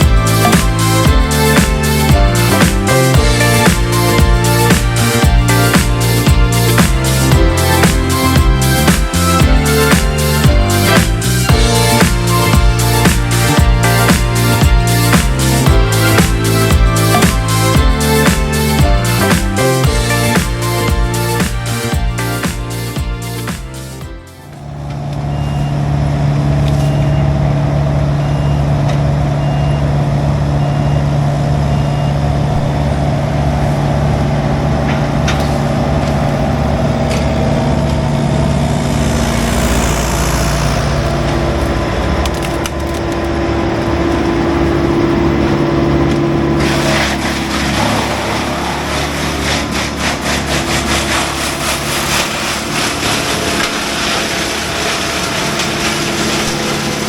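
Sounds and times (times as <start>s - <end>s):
heavy diesel machinery running: 0.0s - 57.0s
backup beeper: 24.5s - 32.8s
wood crackling and splintering: 37.8s - 43.6s, 46.0s - 57.0s.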